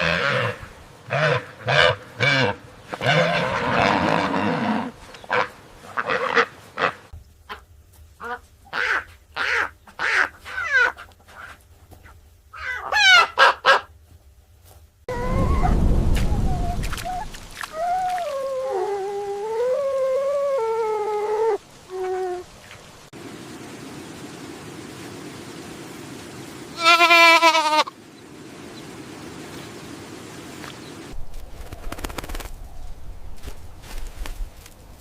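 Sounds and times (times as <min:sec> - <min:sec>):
waterfowl calling: 0:05.2 - 0:11.6, 0:12.6 - 0:13.9
wavering call: 0:15.1 - 0:22.5.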